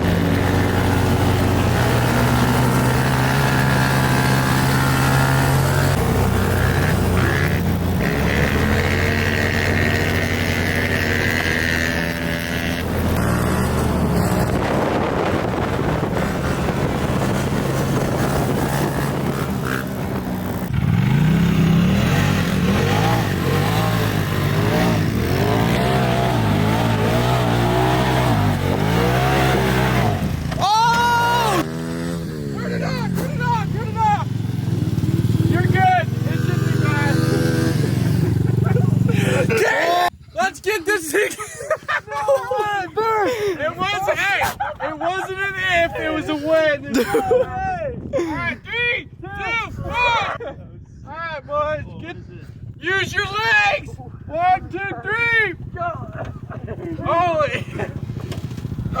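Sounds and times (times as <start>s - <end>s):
small off-road engines revving: 0.0s - 41.5s, 55.5s - 59.0s.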